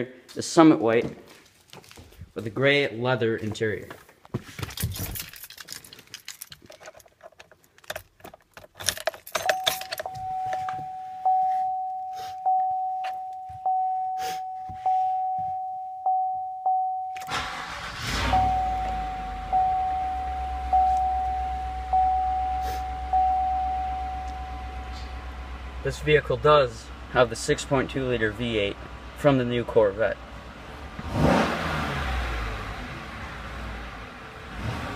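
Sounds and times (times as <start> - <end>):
keys rattling: 4.6 - 11.0
truck warning chime dinging: 9.4 - 26.3
truck engine cranking and idling: 17.2 - 34.8.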